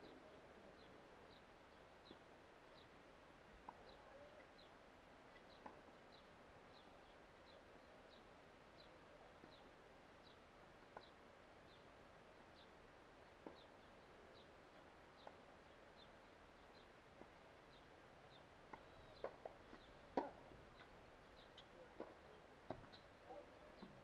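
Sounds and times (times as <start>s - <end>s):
bird chirping: 17.7s - 20.0s, 20.7s - 23.9s.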